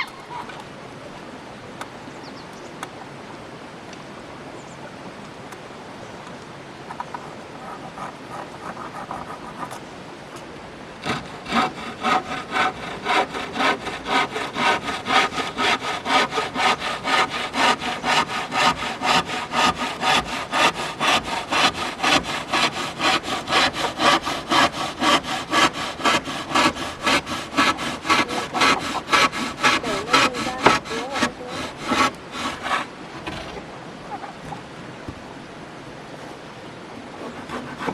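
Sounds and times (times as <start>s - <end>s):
hand saw cutting wood: 7.6s - 9.8s, 11.0s - 33.7s, 37.2s - 37.9s.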